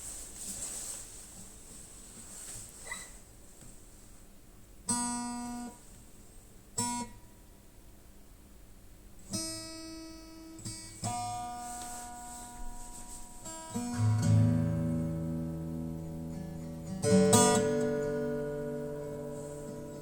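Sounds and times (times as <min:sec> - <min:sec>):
acoustic guitar strummed chords: 0:04.9 - 0:05.8, 0:06.8 - 0:07.2, 0:09.3 - 0:20.0.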